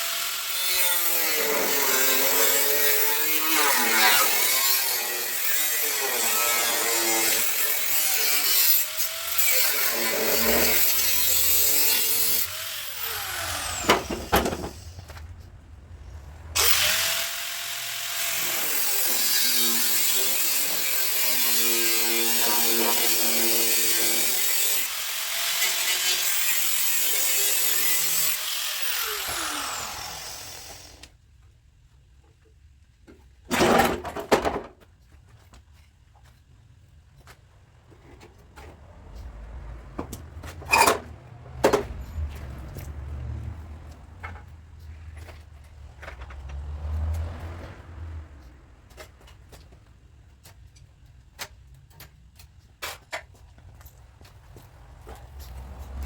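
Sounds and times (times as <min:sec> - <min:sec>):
electric power tool motor: 0:00.0 - 0:14.7, 0:16.6 - 0:31.1.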